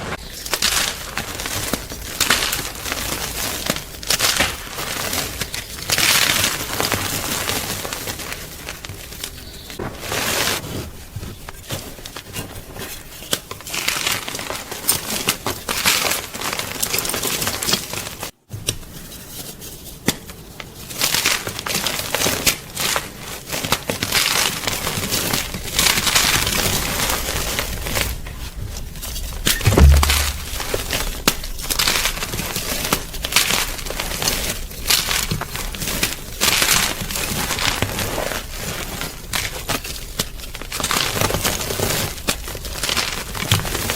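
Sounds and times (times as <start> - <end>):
low thump: 29.6 - 31.3.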